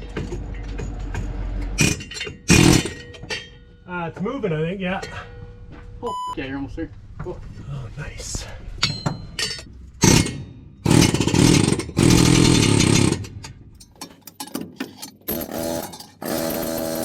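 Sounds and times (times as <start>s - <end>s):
metal clinks and knocks: 0.0s - 4.3s, 4.9s - 6.0s, 8.8s - 17.0s
power tool bursts: 1.8s - 3.0s, 10.0s - 13.3s, 15.3s - 17.0s.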